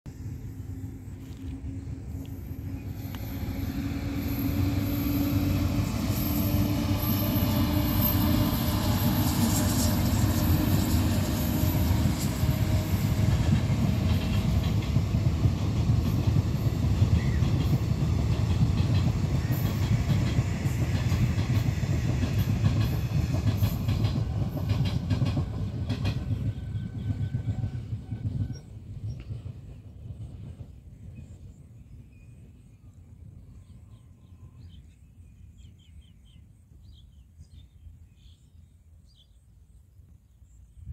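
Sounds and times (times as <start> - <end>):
train wheels rumbling on track: 0.1 - 34.9
clickety-clack over rail joints: 4.5 - 32.6.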